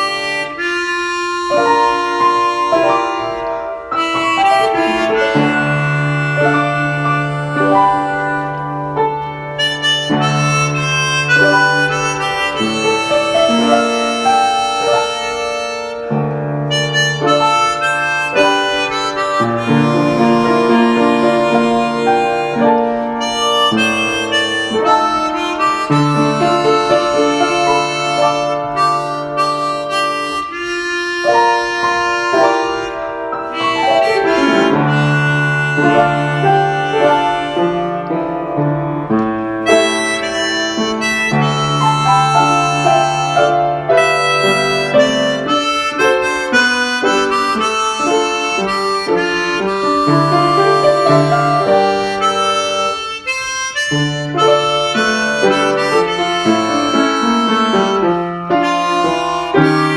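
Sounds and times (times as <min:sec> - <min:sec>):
harmonica melody: 0:00.0 - 0:59.9
held low harmonica note: 0:00.0 - 0:59.9
held low accompaniment notes: 0:01.3 - 0:15.4.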